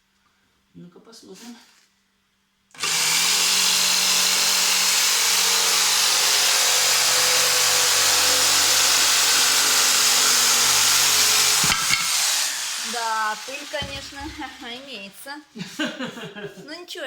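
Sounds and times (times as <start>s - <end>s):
jigsaw sawing plasterboard: 2.8s - 14.9s.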